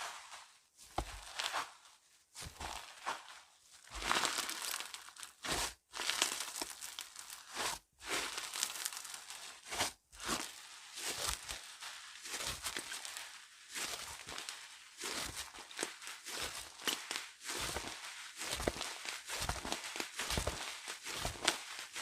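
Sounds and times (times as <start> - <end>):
slime crackling and popping: 4.0 - 7.5.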